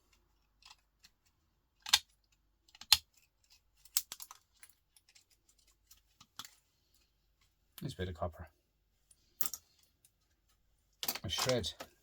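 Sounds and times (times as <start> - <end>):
small parts clicking: 0.1 - 6.6
cutters snapping components: 1.8 - 2.1.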